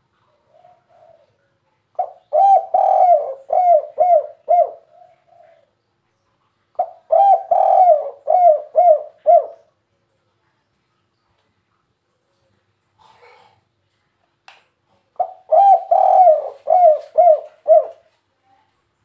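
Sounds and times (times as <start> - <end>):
dove cooing: 0.2 - 5.7, 6.8 - 9.7, 15.2 - 18.2.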